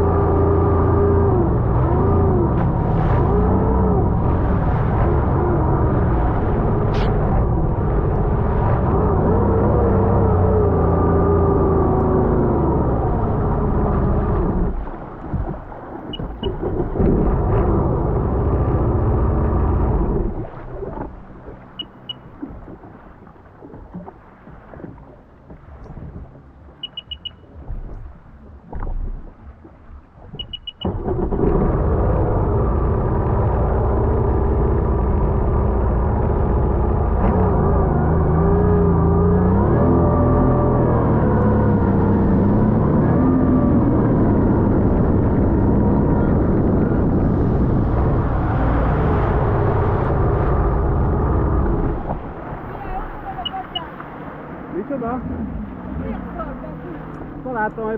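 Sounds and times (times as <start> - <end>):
jet ski engine: 0.0 - 57.9
rushing water: 0.0 - 57.9
short high beeps: 16.1 - 16.6, 21.8 - 22.3, 26.8 - 27.5, 30.4 - 31.0, 53.3 - 53.9.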